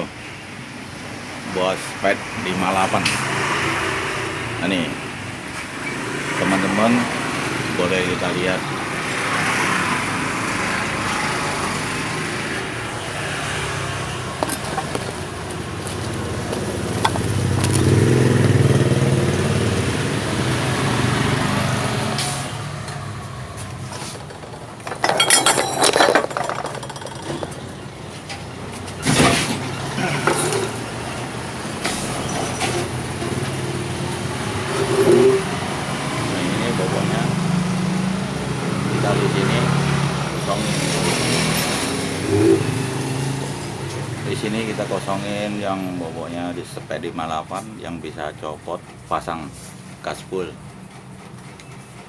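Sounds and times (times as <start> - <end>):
scooter engine running: 13.1 - 25.0.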